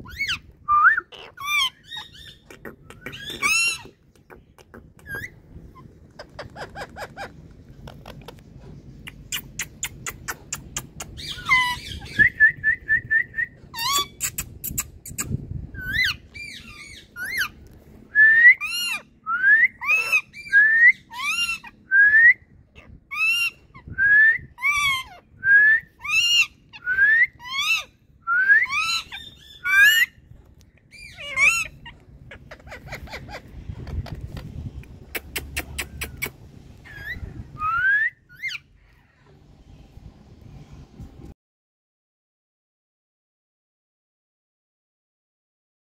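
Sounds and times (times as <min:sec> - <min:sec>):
parrot clicks and chattering: 0:02.4 - 0:05.3, 0:09.0 - 0:11.3, 0:14.0 - 0:15.4, 0:33.9 - 0:36.4
parrot rising whistles: 0:36.8 - 0:38.6.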